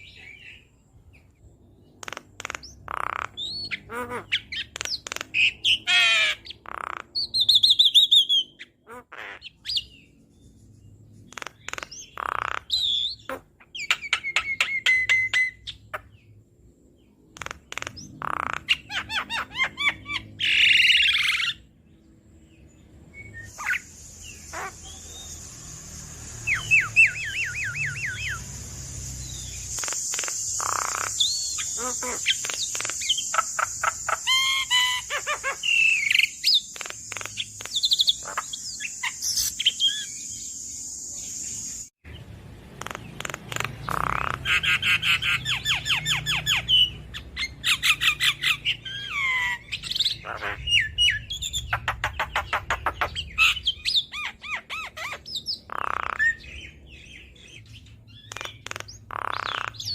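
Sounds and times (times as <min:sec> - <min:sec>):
bird singing varied calls: 0:00.0 - 0:10.6, 0:11.2 - 0:16.4, 0:17.0 - 0:21.7, 0:22.4 - 0:59.9
steady high hiss: 0:23.5 - 0:41.9.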